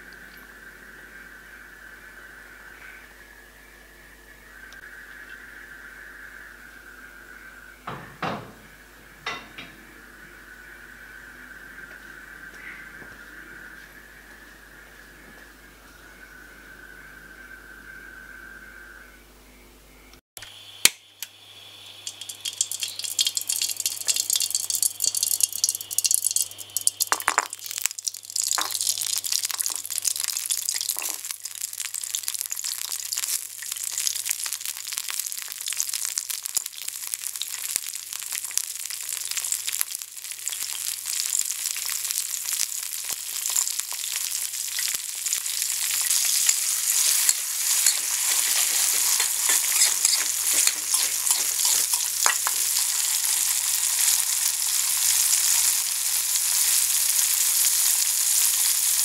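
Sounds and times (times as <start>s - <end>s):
garlic sizzling in hot oil: 20.6s - 59.0s
ingredients knocking into pan: 22.1s - 31.3s, 47.0s - 53.4s
metal spatula stirring: 22.1s - 31.3s, 44.7s - 54.4s.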